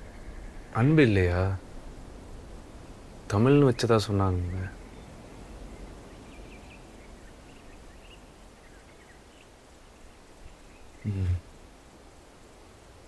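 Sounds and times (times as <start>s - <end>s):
faint bird chirps: 0.0s - 1.5s, 3.3s - 11.5s
low background rumble: 0.0s - 13.0s.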